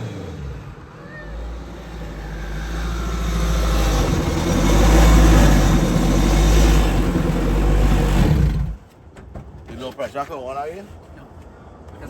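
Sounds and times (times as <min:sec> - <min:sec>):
car engine running under load: 0:00.0 - 0:09.0.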